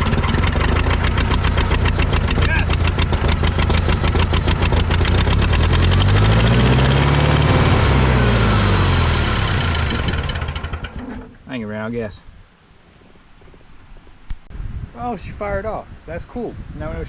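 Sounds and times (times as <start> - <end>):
tractor engine firing: 0.0 - 11.4.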